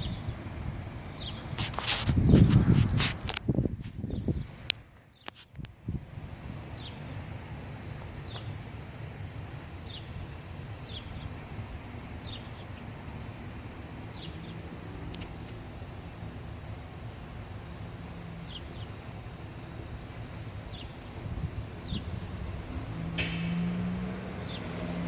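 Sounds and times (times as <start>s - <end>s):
low outdoor rumble: 0.0s - 25.0s
bird chirping: 9.8s - 11.4s, 12.2s - 12.9s, 14.0s - 14.6s, 18.4s - 19.0s, 20.7s - 21.1s, 21.8s - 22.2s.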